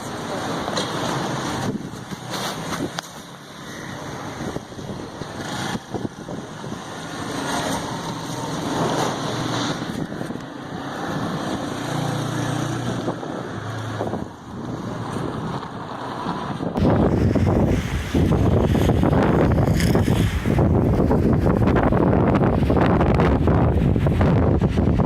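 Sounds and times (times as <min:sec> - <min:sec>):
wind gusting over microphone: 0:00.0 - 0:25.0.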